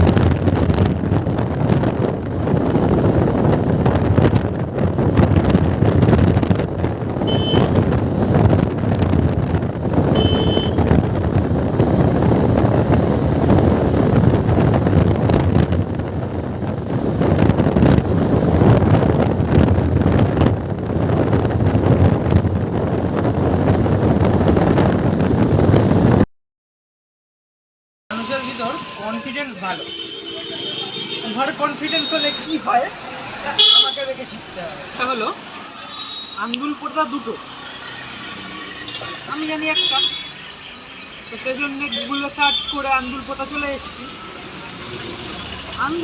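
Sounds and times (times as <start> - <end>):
motorcycle road and engine noise: 0.0 - 26.2, 28.2 - 46.0
wind buffeting microphone: 0.0 - 26.2
short high beeps: 7.3 - 7.7, 10.2 - 10.8, 28.1 - 32.6.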